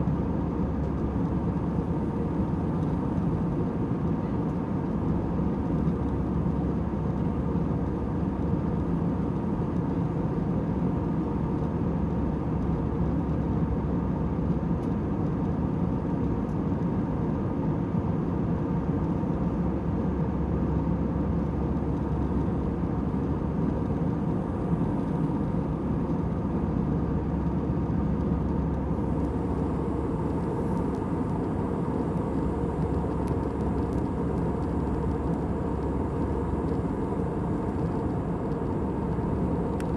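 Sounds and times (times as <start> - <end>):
airliner cabin rumble and hiss: 0.0 - 39.9
low hum: 21.6 - 39.9
faint steady tones: 28.4 - 39.9.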